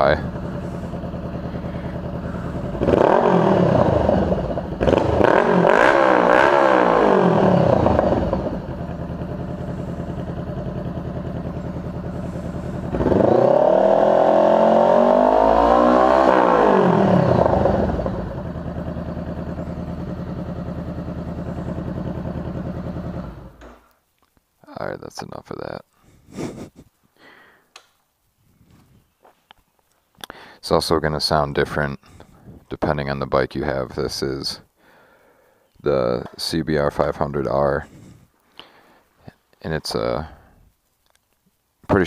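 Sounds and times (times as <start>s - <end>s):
motorcycle engine idling and revving: 0.0s - 23.8s.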